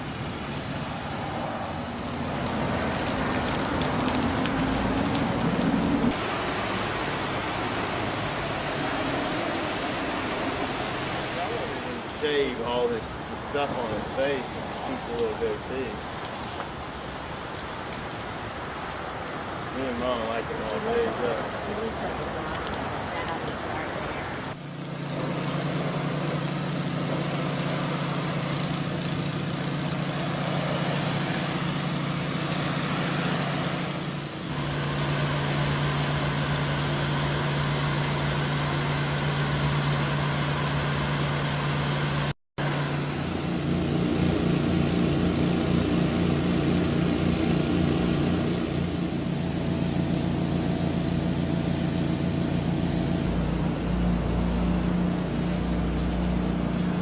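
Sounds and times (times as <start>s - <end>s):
pressure washer engine running: 0.0s - 17.0s, 19.8s - 57.0s
broad hiss of spray: 53.2s - 57.0s.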